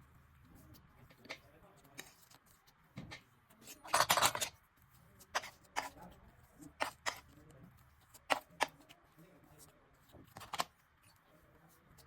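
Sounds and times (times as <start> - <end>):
slime squishing: 3.5 - 11.2.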